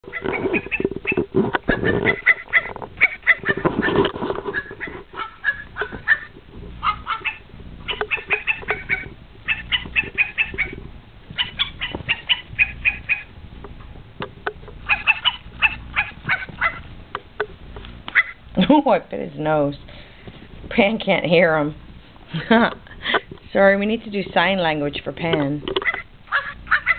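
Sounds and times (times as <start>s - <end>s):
ferrets dooking: 0.0s - 13.4s, 14.6s - 17.0s, 17.9s - 18.6s, 25.7s - 26.9s.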